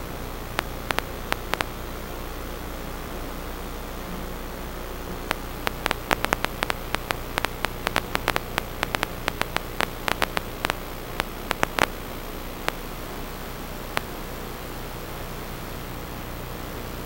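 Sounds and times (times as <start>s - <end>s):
static hiss: 0.0s - 17.0s
sharp clicks: 0.6s - 1.7s, 5.3s - 12.0s
low hum: 5.1s - 13.2s.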